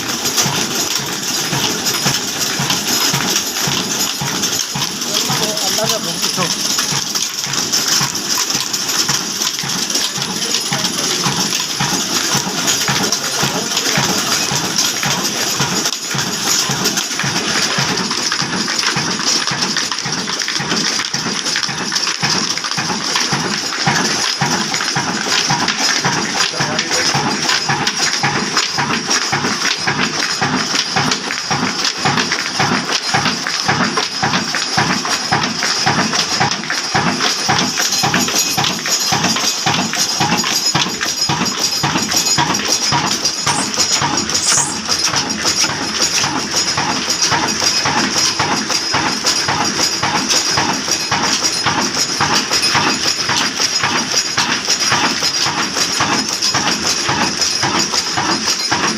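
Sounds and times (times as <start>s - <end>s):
diesel engine clattering: 0.0s - 58.9s
metallic clinking: 37.2s - 53.3s.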